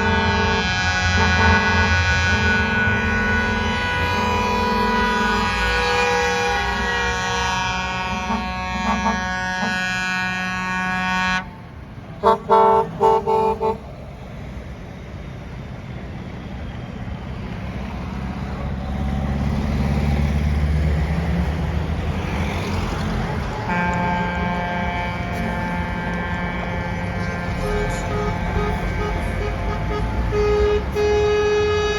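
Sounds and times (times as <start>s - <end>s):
short loud horn toots: 0.0s - 11.4s, 23.7s - 31.9s
truck engine running: 0.0s - 31.9s
sustained chord of tones: 24.2s - 31.9s.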